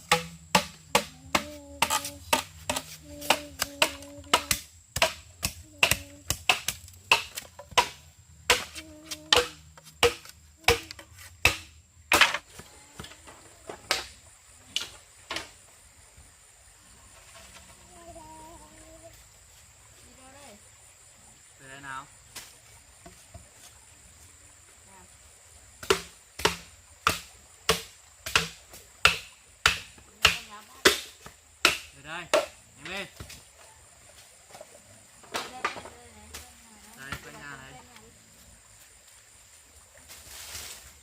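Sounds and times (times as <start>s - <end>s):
sharp knocks: 0.0s - 12.4s.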